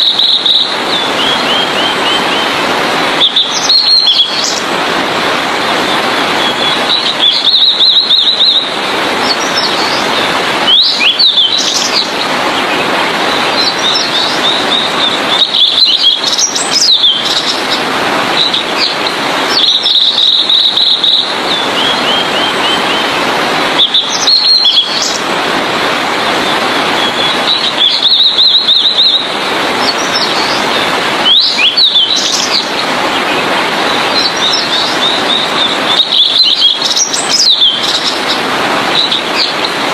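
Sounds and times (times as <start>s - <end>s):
bird singing high phrases: 0.0s - 2.6s, 3.2s - 4.6s, 5.8s - 17.8s, 18.4s - 23.1s, 23.8s - 25.2s, 27.0s - 38.4s, 39.0s - 39.8s
steady rushing noise: 0.0s - 39.9s.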